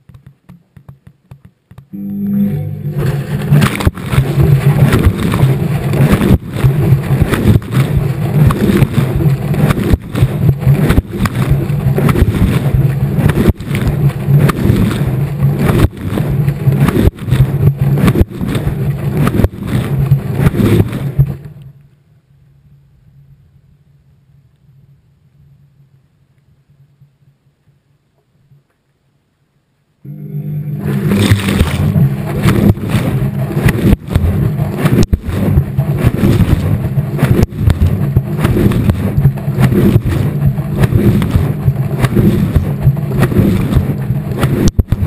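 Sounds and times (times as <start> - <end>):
faint low hum: 0.0 - 45.0
laundry and water sloshing in drum: 3.0 - 21.5, 30.8 - 45.0.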